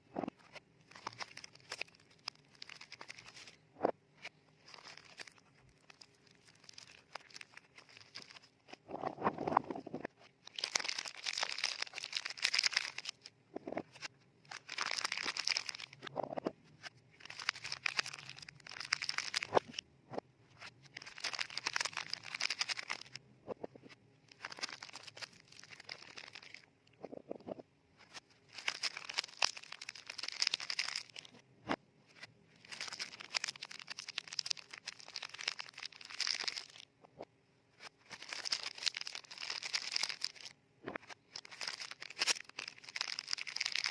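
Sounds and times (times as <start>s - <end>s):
paper wrappers crinkling: 0.4s - 3.6s, 4.6s - 8.8s, 10.4s - 16.1s, 17.2s - 19.8s, 20.6s - 23.2s, 24.3s - 26.6s, 28.0s - 31.4s, 32.2s - 36.9s, 37.8s - 43.9s.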